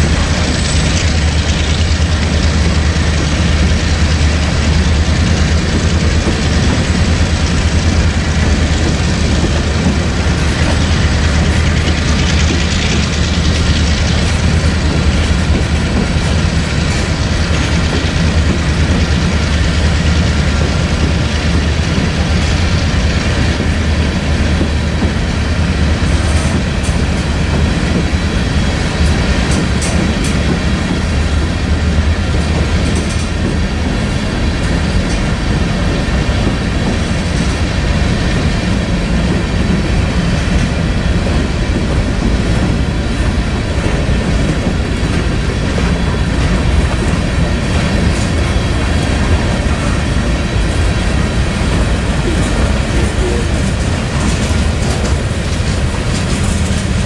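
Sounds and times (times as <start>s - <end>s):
steel wheels rumbling on rails: 0.0s - 57.0s
wheels clicking over track: 28.7s - 57.0s.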